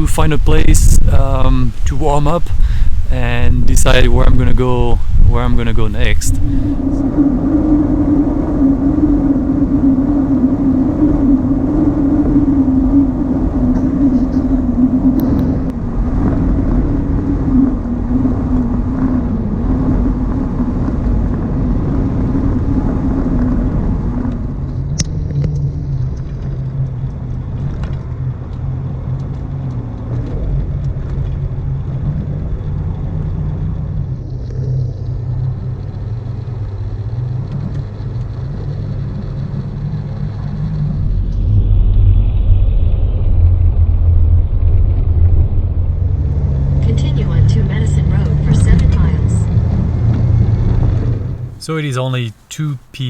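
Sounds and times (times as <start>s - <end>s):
vehicle engine and road rumble: 0.0s - 53.0s.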